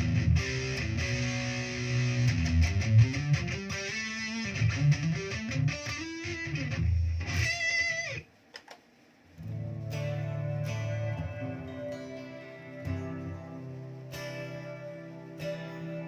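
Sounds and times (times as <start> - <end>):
electric guitar notes with slides: 0.0 - 8.2, 9.4 - 16.0.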